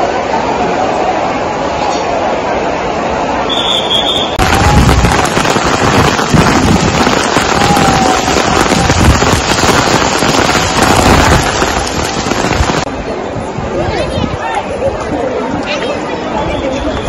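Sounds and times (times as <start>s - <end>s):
heavy rain on pavement: 4.4s - 13.0s.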